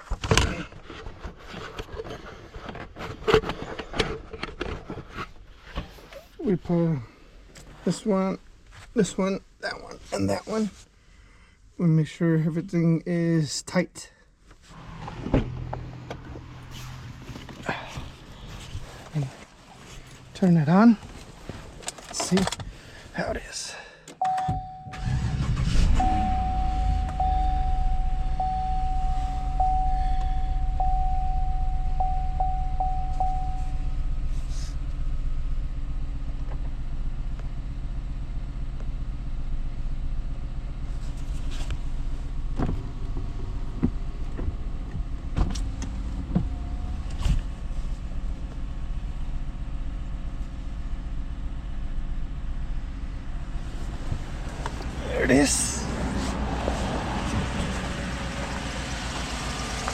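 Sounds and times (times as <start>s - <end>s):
car engine starting and idling: 14.7s - 23.5s, 24.1s - 59.9s
steady chime tone: 26.0s - 33.8s.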